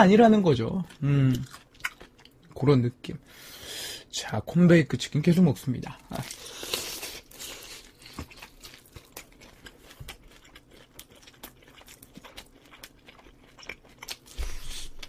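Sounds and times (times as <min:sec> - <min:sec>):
chewing and crunching: 0:00.8 - 0:02.6, 0:06.1 - 0:15.0.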